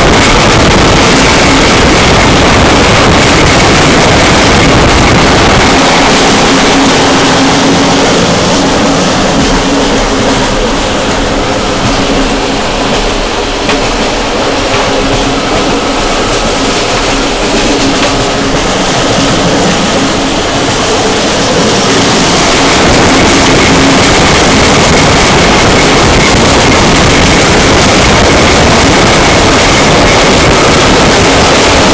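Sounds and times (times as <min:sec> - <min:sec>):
train running on track: 0:00.0 - 0:31.9.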